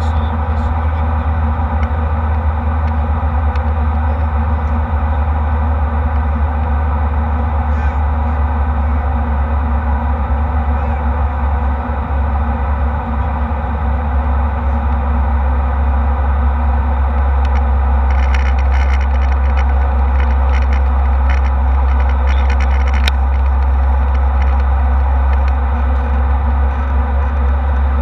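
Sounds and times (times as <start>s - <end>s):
deep rumble: 0.0s - 28.0s
jet engine cabin drone: 0.0s - 28.0s
faint light rattles: 17.1s - 28.0s.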